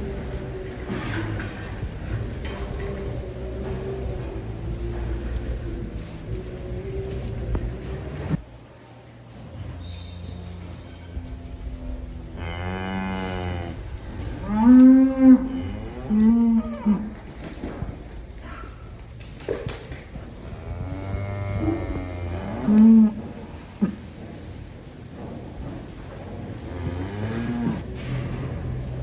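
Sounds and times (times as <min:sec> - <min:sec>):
cows mooing: 0:00.0 - 0:08.4, 0:10.4 - 0:18.8, 0:20.2 - 0:24.0, 0:26.6 - 0:27.9
steady low hum: 0:00.0 - 0:29.0.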